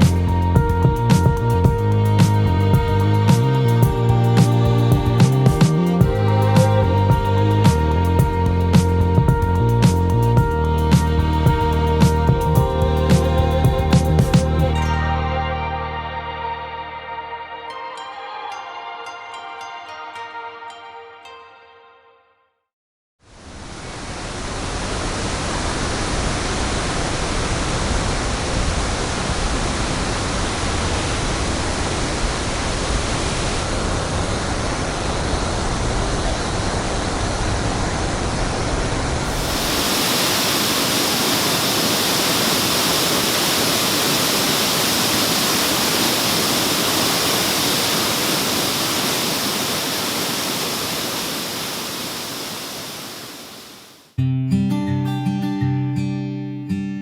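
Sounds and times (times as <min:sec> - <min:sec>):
waterfall roaring: 0:23.6 - 0:54.1.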